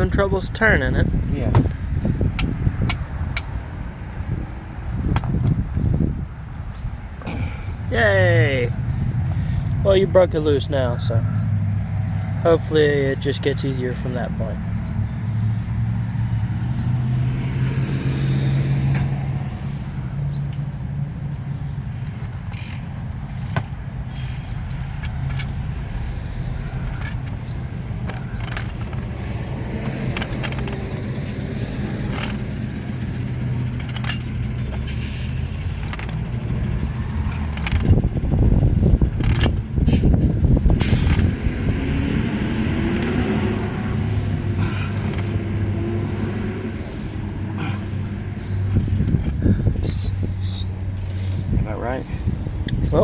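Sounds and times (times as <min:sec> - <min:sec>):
low engine hum: 0:00.0 - 0:53.0
rough loud rumble: 0:00.0 - 0:53.0
hand tools clicking and scraping: 0:22.0 - 0:25.6, 0:26.6 - 0:32.6, 0:33.6 - 0:36.4, 0:37.2 - 0:38.0, 0:42.9 - 0:43.6, 0:44.3 - 0:51.5.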